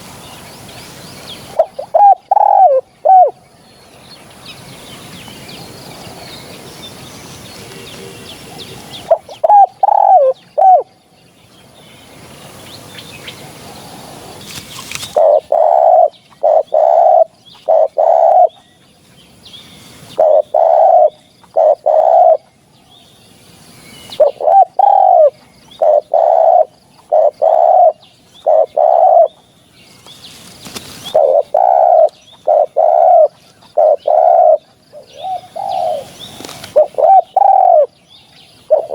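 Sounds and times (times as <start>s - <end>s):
dove cooing: 1.5s - 3.4s, 7.6s - 10.9s, 15.0s - 18.6s, 20.2s - 22.5s, 24.1s - 29.4s, 31.0s - 37.9s, 38.7s - 38.9s.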